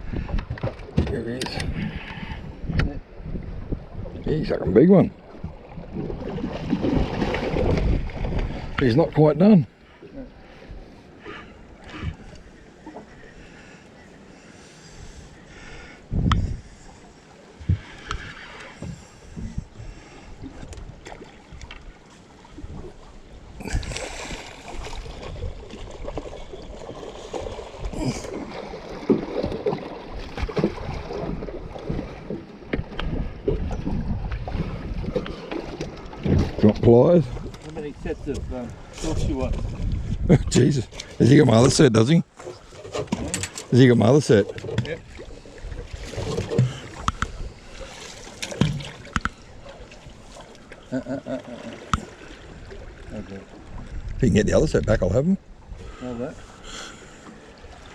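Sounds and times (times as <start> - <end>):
wind on microphone: 0.0 - 0.8, 1.5 - 4.8, 5.4 - 8.9, 16.1 - 16.8, 17.6 - 21.7, 24.7 - 26.8, 30.2 - 35.4, 36.2 - 41.8, 53.6 - 56.0
water splashing: 4.3 - 9.3, 17.4 - 54.2.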